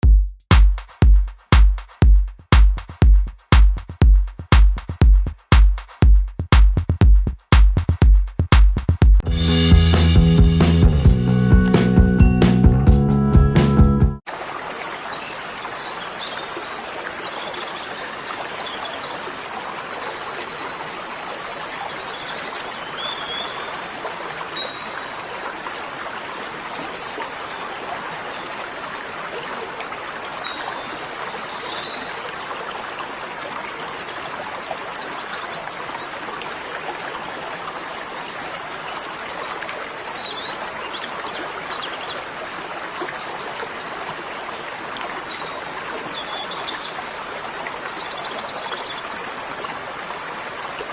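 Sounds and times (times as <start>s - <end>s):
running water: 14.2s - 50.9s.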